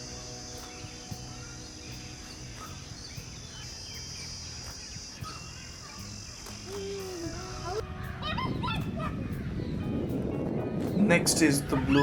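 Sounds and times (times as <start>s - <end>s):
high-pitched insect drone: 0.0s - 7.8s.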